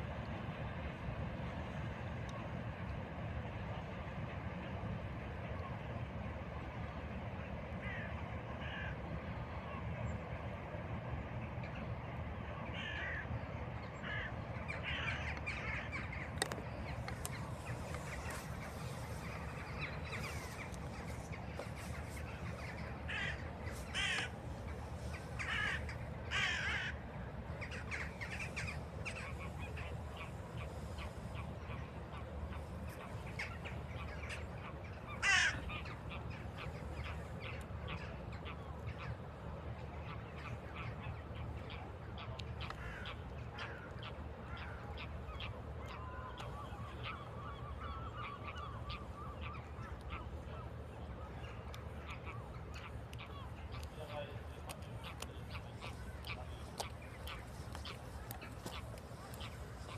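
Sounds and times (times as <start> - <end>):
steady low rumble: 0.0 - 59.9
crows cawing: 7.8 - 9.0, 12.7 - 13.3, 14.0 - 16.1, 23.1 - 24.4, 25.4 - 27.0, 35.1 - 35.9, 42.7 - 43.9.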